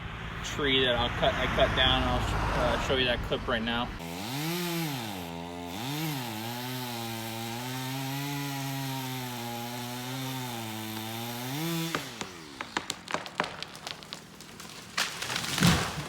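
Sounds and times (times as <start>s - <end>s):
chainsaw cutting wood: 4.0s - 16.0s.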